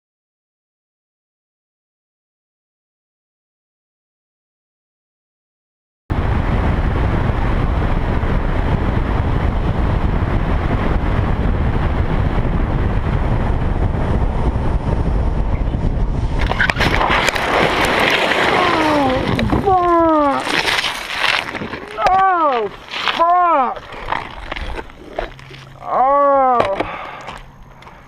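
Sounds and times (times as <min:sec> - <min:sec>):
wind buffeting microphone: 0:06.1 - 0:27.8
road noise: 0:06.1 - 0:28.0.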